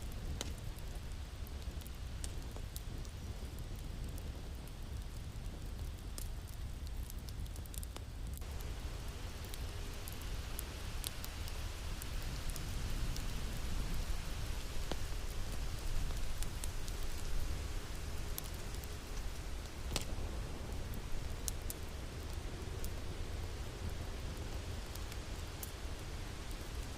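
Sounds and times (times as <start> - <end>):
wood fire crackling: 0.0 - 26.9
sharp fire pops: 0.1 - 8.7, 14.7 - 23.0.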